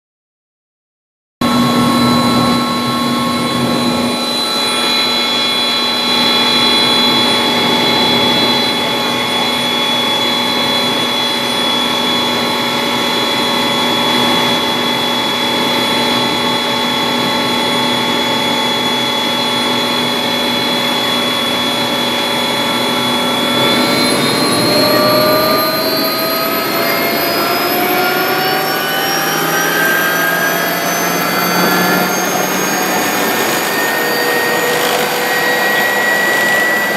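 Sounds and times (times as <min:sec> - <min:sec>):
helicopter engine and rotor whine: 0:01.4 - 0:36.9.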